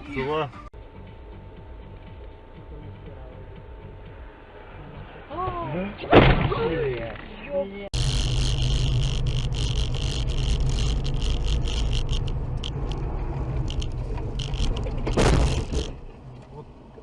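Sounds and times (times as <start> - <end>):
vehicle running drone: 0.8 - 6.0, 8.0 - 17.0
rapid irregular rattling: 8.0 - 16.2.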